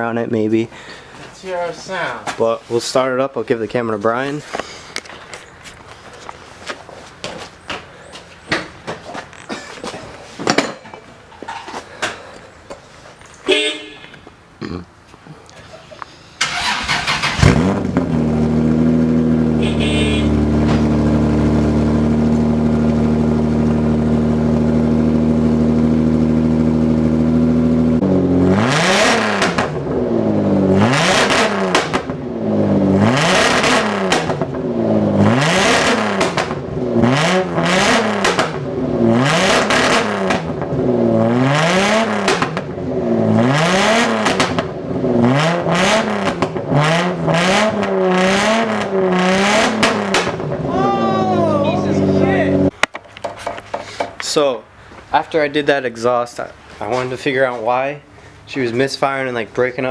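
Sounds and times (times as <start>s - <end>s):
car engine starting: 16.4s - 52.8s
engine revving: 16.4s - 52.8s.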